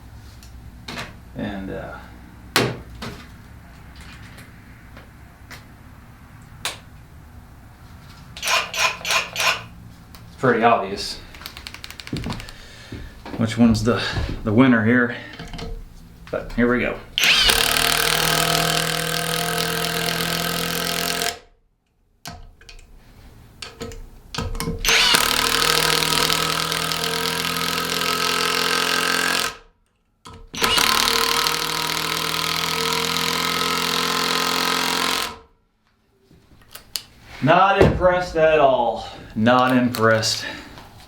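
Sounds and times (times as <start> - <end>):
impact driver hammering: 8.4 - 9.7, 17.2 - 21.4, 24.4 - 29.6, 30.3 - 35.4.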